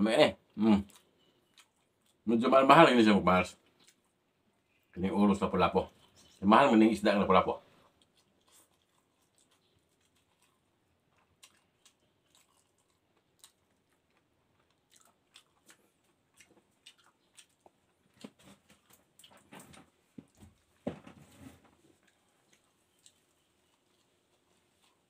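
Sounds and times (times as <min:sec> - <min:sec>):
person chewing with wet clicks: 0:00.8 - 0:02.3, 0:03.6 - 0:05.0, 0:07.8 - 0:19.6, 0:21.9 - 0:25.0.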